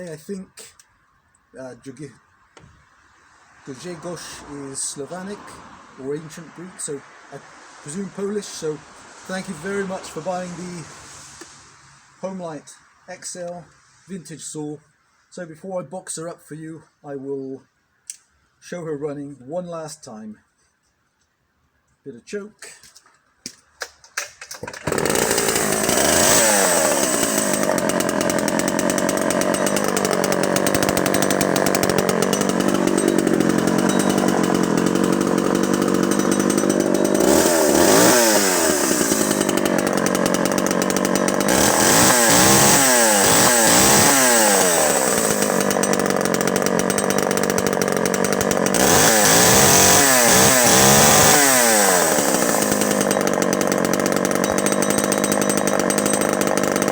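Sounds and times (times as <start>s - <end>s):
chainsaw starting and revving: 3.6s - 11.4s, 23.8s - 56.9s.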